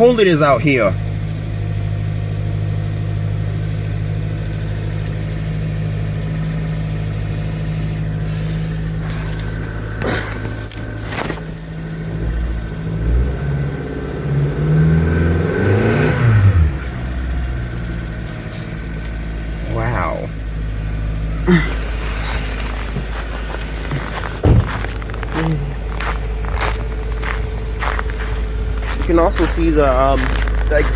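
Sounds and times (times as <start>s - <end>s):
car engine idling: 0.0s - 30.9s
sharp knocks: 24.4s - 25.0s.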